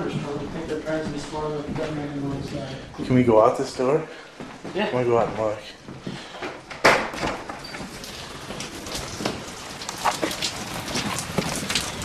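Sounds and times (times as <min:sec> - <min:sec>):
door opening: 0:06.5 - 0:10.5.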